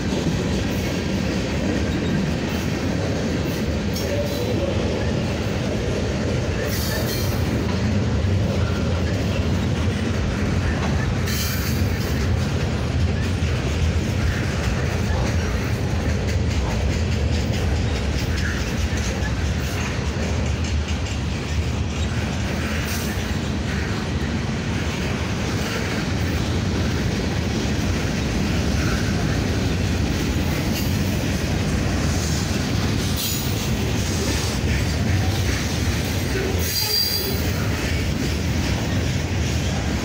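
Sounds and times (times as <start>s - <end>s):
freight train rumbling past: 0.0s - 40.0s
high-pitched wheel squeal: 36.6s - 37.5s.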